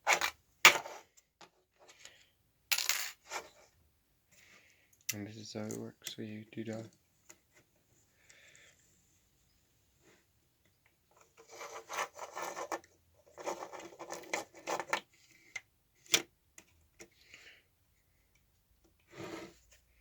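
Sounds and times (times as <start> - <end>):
plastic model parts scraping: 11.2 - 15.6.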